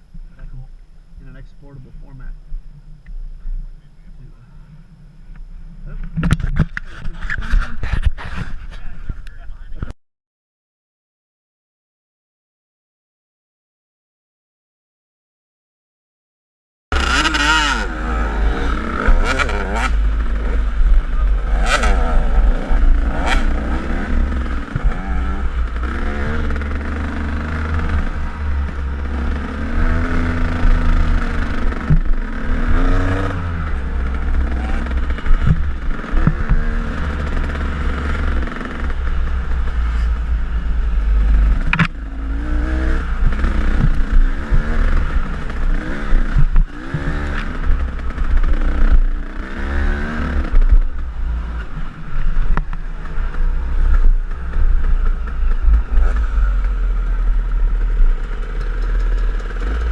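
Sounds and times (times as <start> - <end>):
wind rumble on microphone: 0.0 - 9.9, 17.1 - 59.9
dirt bike engine revving: 16.9 - 59.9.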